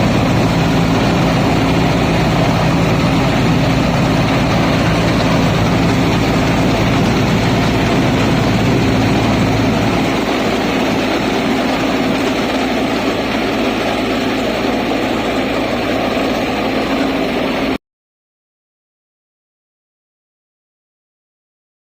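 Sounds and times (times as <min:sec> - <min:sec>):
combine harvester engine hum: 0:00.0 - 0:17.8.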